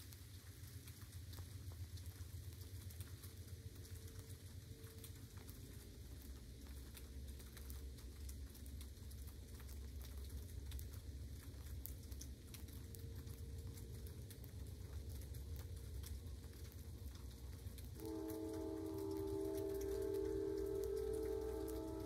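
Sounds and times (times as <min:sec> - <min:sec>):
light rain pattering: 0:00.0 - 0:22.0
steady low rumble: 0:01.3 - 0:22.0
sharp drop ticks: 0:18.0 - 0:22.0.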